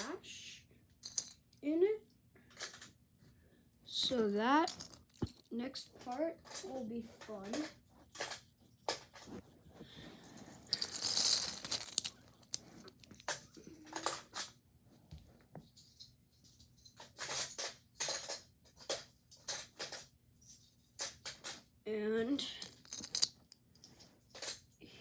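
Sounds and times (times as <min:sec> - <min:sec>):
toy cars clicking and clattering: 0:01.0 - 0:01.4, 0:02.5 - 0:02.9, 0:04.0 - 0:09.2, 0:10.6 - 0:14.5, 0:16.8 - 0:21.6, 0:22.5 - 0:24.6.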